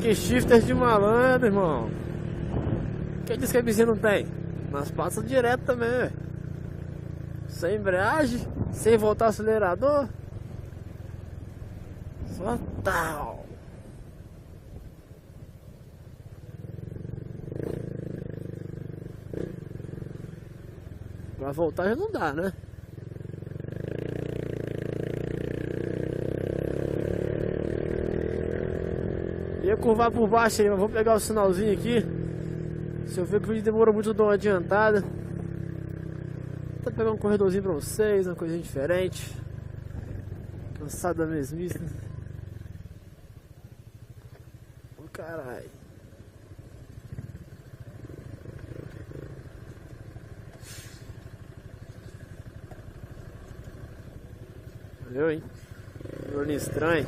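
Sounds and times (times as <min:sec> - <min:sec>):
motorcycle engine running: 0:00.0 - 0:57.0
short hiss: 0:50.5 - 0:51.2.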